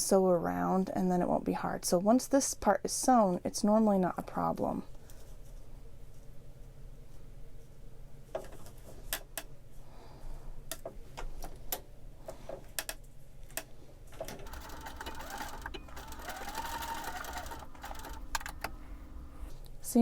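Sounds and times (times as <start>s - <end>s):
sewing machine running: 14.3s - 19.5s.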